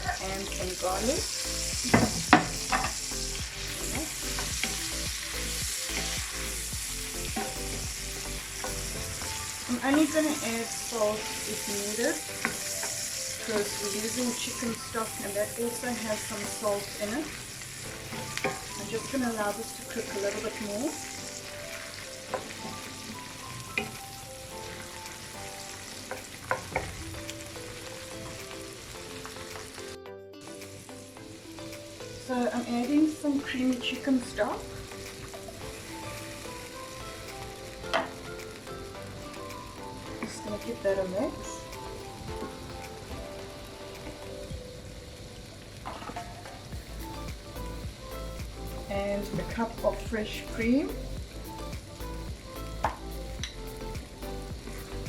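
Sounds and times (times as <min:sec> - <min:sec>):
vegetables sizzling in a frying pan: 0:00.0 - 0:55.0.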